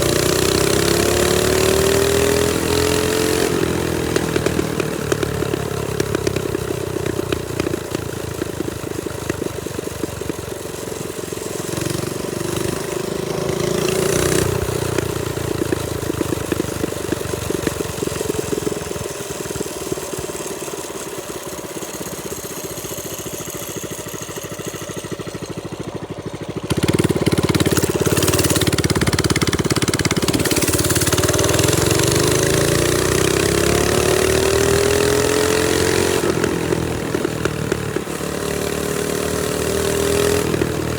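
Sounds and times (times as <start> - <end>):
minibike engine revving: 0.0 - 40.9.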